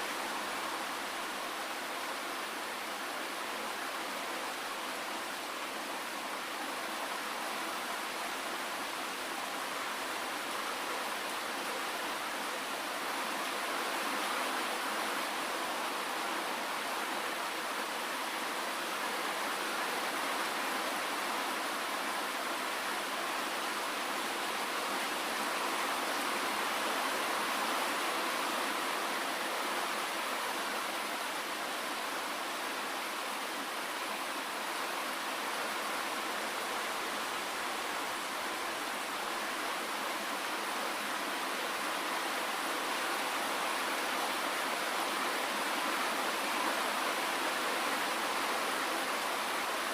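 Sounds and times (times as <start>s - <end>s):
dense rainfall: 0.0s - 49.9s.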